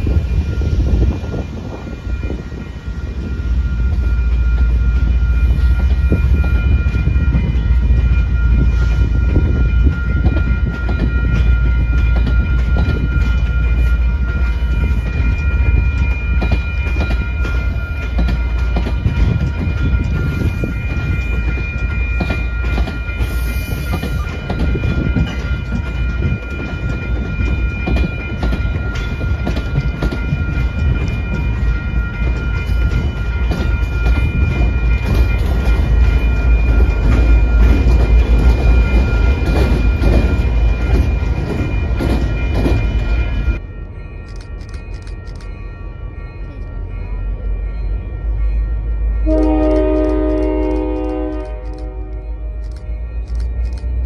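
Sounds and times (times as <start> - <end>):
diesel locomotive passing: 0.0 - 54.0
train wheel rumble and clicking: 0.0 - 54.0.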